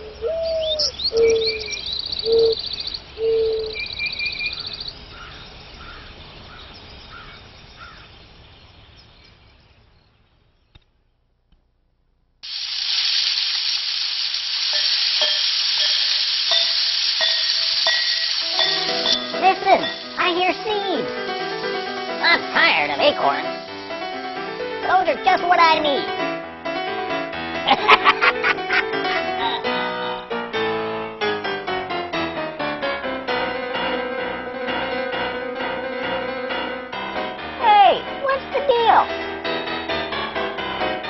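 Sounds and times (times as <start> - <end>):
birdsong: 0.0 - 11.4, 14.8 - 26.2, 27.9 - 30.3
steady hiss with faint tones: 0.0 - 26.5, 27.7 - 30.4.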